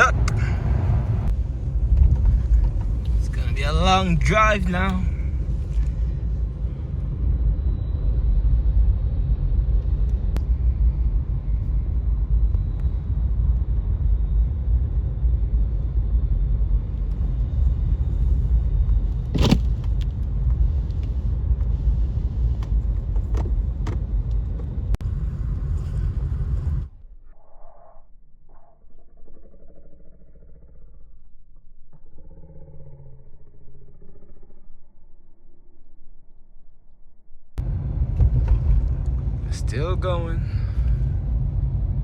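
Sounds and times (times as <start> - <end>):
car road and engine noise: 0.0 - 27.0, 37.6 - 42.0.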